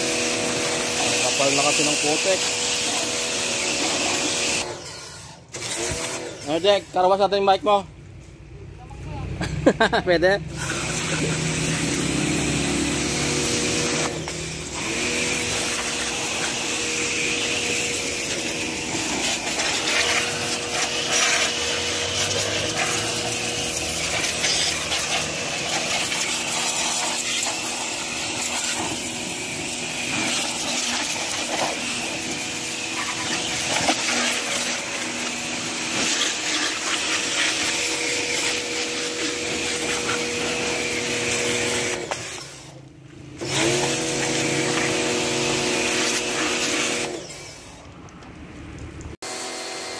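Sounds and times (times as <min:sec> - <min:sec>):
pressure washer motor whine: 0:00.0 - 0:07.2, 0:10.5 - 0:47.9, 0:49.2 - 0:49.9
water spraying hiss: 0:10.5 - 0:41.2.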